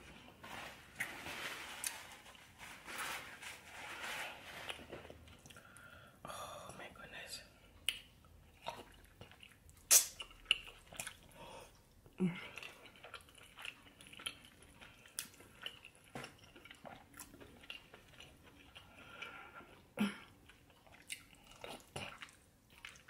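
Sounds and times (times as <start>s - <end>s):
chewing and lip smacking: 7.8s - 23.0s
wet mouth clicks: 8.7s - 11.2s.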